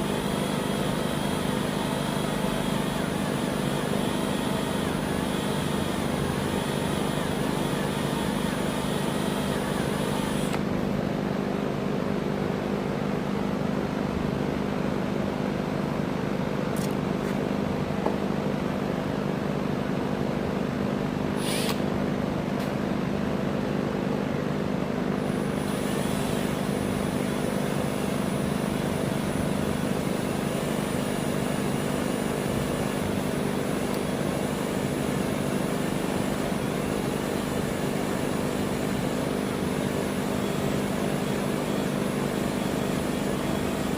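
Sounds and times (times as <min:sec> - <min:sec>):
electric drill drilling steel: 0:00.0 - 0:10.6, 0:21.4 - 0:21.8, 0:25.2 - 0:43.9.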